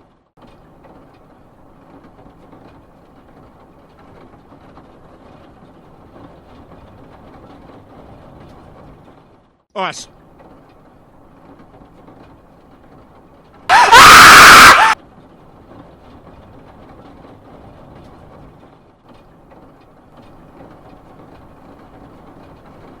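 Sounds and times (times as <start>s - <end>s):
loud distorted shriek: 13.7s - 15.0s.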